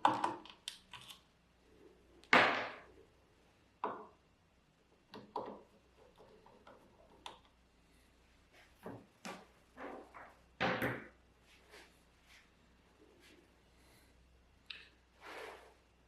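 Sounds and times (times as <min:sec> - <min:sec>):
objects knocking and clunking: 0:03.8 - 0:04.2, 0:08.8 - 0:11.2.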